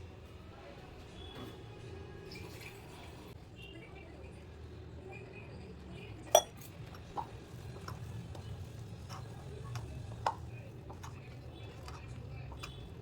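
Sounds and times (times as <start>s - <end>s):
dishes and utensils clinking: 6.3s - 8.0s.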